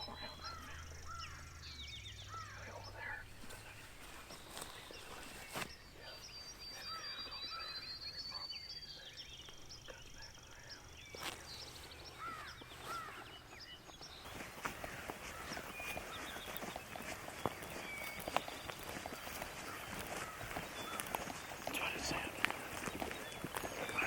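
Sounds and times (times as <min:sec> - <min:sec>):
songbirds singing: 0:00.0 - 0:24.0
crackling rustles: 0:02.6 - 0:07.7, 0:11.1 - 0:24.0.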